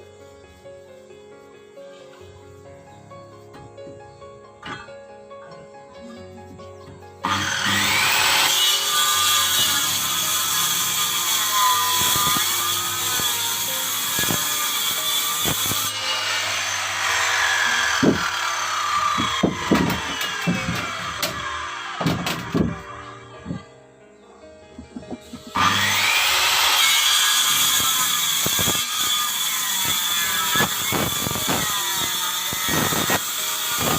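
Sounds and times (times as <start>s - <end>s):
power tool cutting wood: 7.2s - 23.0s, 25.3s - 33.9s.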